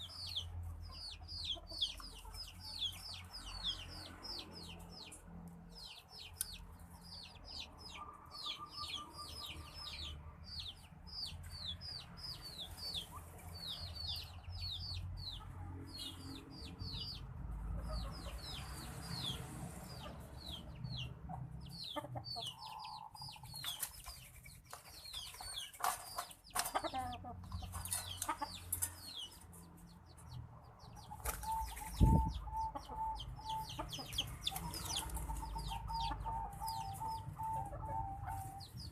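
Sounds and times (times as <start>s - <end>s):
low clucking bird notes: 31.0s - 38.9s.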